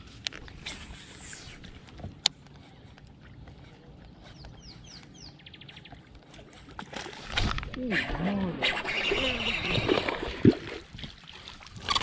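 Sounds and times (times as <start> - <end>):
open water ambience: 0.0 - 12.0
bird chirping and trilling: 8.7 - 10.1.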